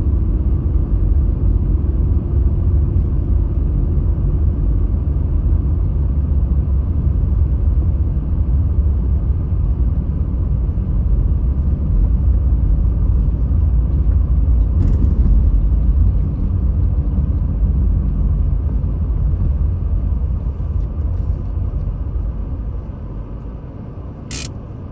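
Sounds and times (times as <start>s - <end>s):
road and engine rumble in car: 0.0s - 24.9s
faint click: 24.3s - 24.5s.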